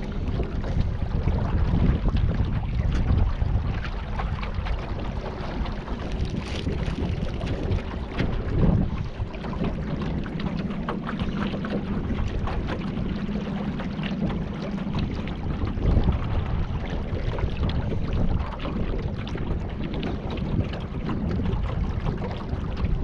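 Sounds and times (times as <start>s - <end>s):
boat motor running: 0.0s - 23.0s
water splashing against hull: 0.0s - 23.0s
wind buffeting microphone: 0.0s - 23.0s.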